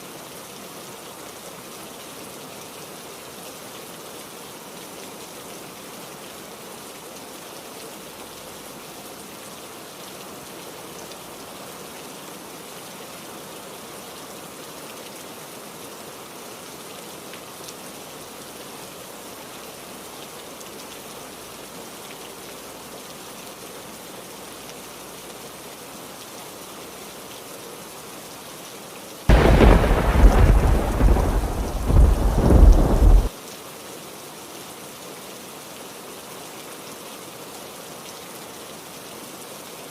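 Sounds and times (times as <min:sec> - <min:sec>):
heavy rain: 0:00.0 - 0:39.9
thunderclap with deep rumble: 0:29.3 - 0:33.3.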